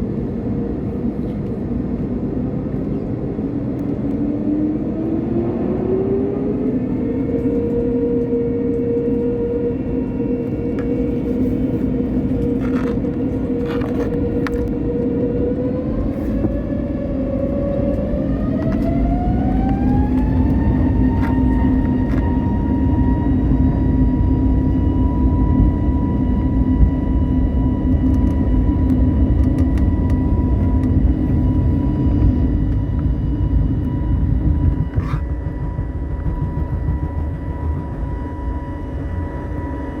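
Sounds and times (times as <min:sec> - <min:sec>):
deep rumble: 0:00.0 - 0:40.0
jet engines whining: 0:00.0 - 0:40.0.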